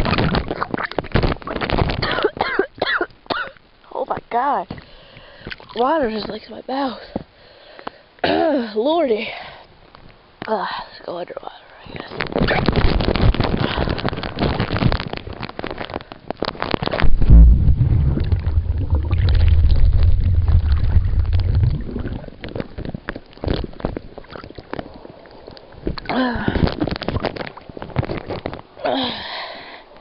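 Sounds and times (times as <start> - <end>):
water splashing on microphone: 12.1 - 28.6
underwater clicks: 12.4 - 28.6
water bubbling: 16.9 - 28.0
deep muffled underwater rumble: 17.0 - 25.1.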